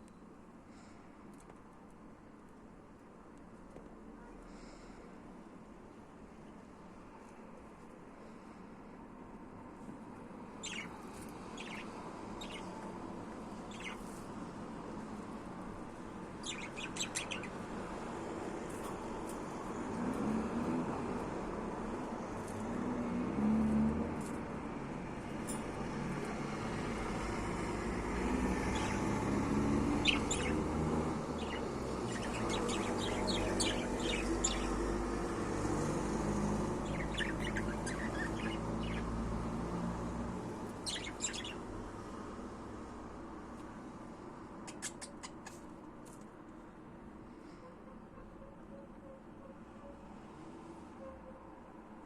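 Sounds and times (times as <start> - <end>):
budgerigar chirping: 10.6 - 11.0, 11.6 - 12.7, 13.7 - 14.0, 16.4 - 17.6, 30.0 - 30.6, 31.4 - 34.8, 36.8 - 39.0, 40.8 - 41.6.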